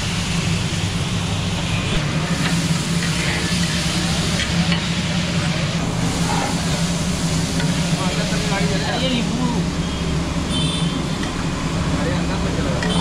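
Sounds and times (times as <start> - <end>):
steady low hum: 0.0 - 12.4
tomatoes sizzling on a griddle: 2.0 - 9.6.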